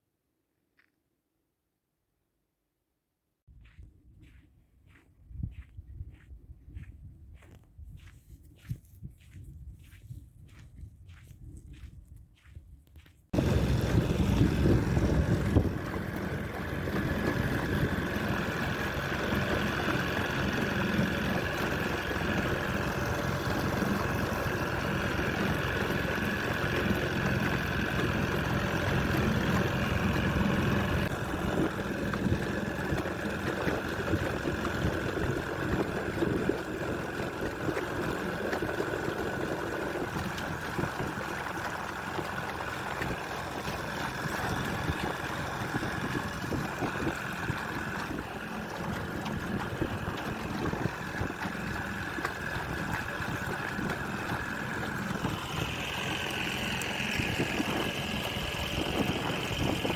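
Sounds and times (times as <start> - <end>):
outboard motor running: 13.3 - 59.9.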